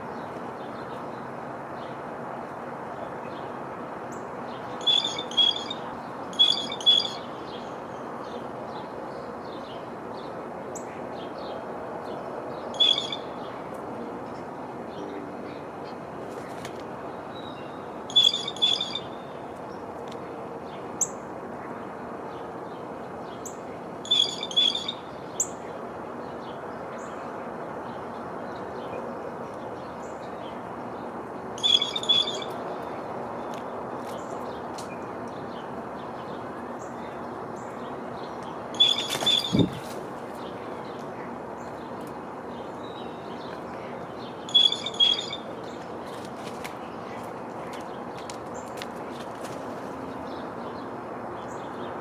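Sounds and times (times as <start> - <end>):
small birds calling: 38.8 - 40.0, 44.3 - 46.4.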